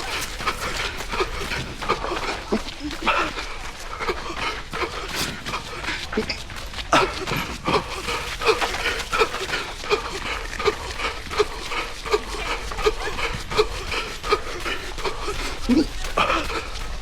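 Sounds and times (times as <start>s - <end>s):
runner wheezing breaths: 0.0s - 17.0s.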